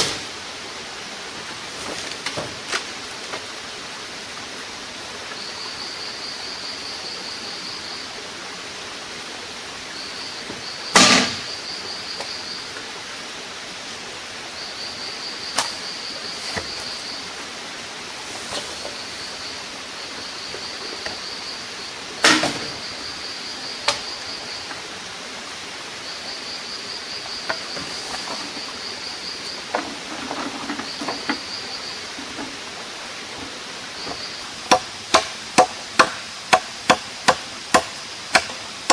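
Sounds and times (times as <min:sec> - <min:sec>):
steady hiss: 0:00.0 - 0:38.9
insect trilling: 0:26.0 - 0:32.6
loud sharp knocks: 0:34.7 - 0:38.9.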